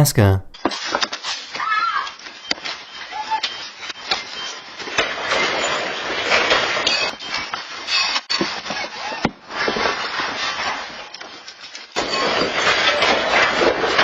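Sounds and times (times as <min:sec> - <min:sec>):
earthquake rattling and clattering: 0:11.9 - 0:14.0.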